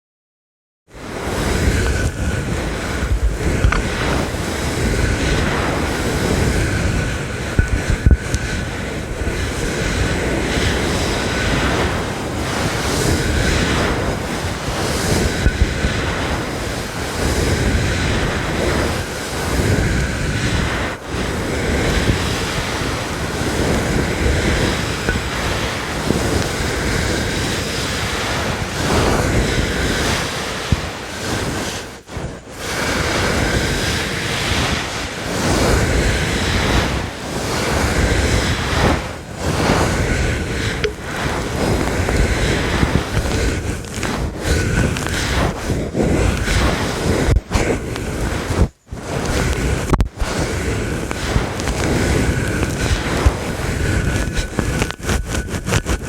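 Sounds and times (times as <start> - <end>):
brush scratching microphone cover: 1.4 - 6.6, 7.5 - 9.7, 10.6 - 20.9, 36.5 - 56.0.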